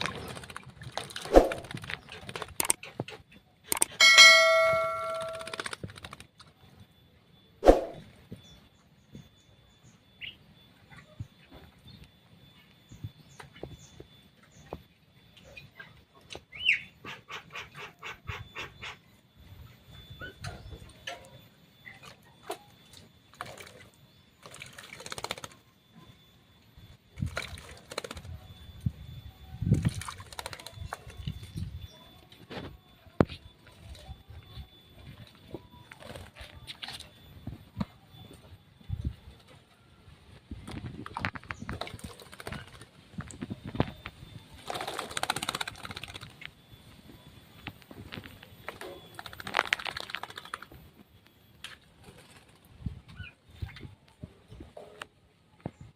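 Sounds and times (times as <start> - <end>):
fluttering wings: 0.0 - 6.7, 23.3 - 25.6, 27.1 - 28.5, 29.7 - 31.6, 35.2 - 37.1, 40.5 - 46.6, 48.0 - 50.8
metallic clang ringing: 4.0 - 5.6.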